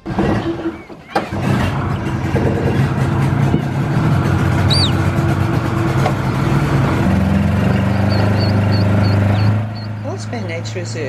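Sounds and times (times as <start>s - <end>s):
engine humming: 0.0s - 11.0s
bird chirp: 4.6s - 5.1s, 7.4s - 10.4s.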